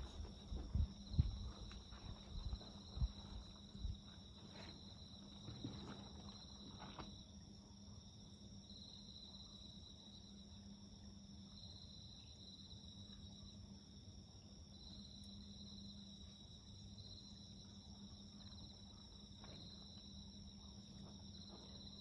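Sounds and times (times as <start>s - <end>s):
campfire crackling: 0.0s - 7.2s
crickets trilling: 0.0s - 22.0s.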